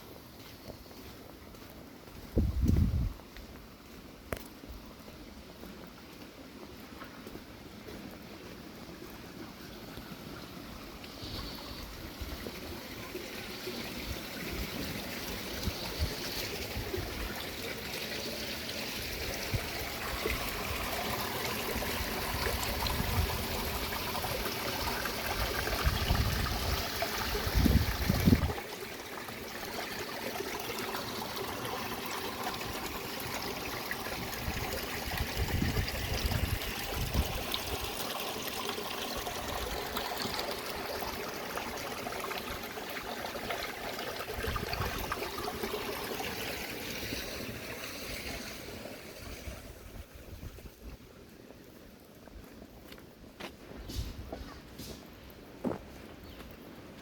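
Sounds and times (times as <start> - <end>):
running water: 3.8 - 56.8.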